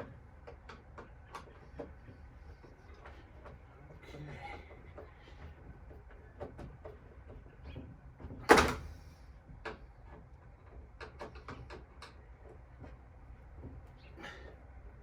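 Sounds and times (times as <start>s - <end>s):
loud metal clunk: 8.5s - 9.0s.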